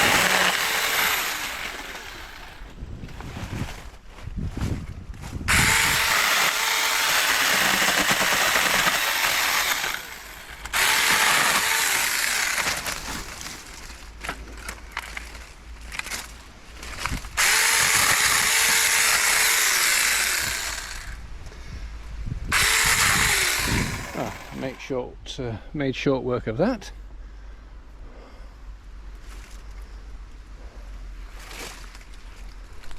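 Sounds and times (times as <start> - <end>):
chainsaw cutting branches: 0.0 - 2.7, 5.5 - 13.9, 15.9 - 21.2, 22.5 - 24.8.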